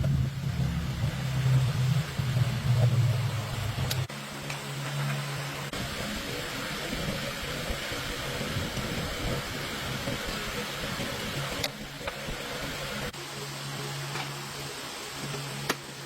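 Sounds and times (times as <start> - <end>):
low hum: 0.0 - 16.0
machine running noisily: 0.0 - 16.0.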